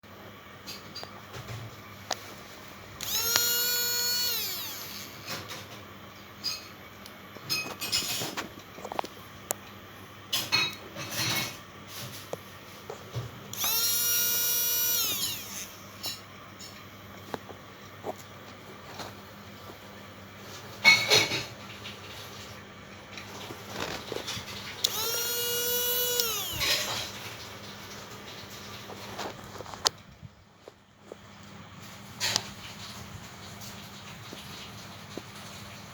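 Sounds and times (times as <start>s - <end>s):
clicks: 3.0s - 5.1s, 13.6s - 15.8s, 24.8s - 27.1s
small electric motor whining: 3.0s - 5.4s, 13.5s - 16.2s, 24.8s - 27.2s.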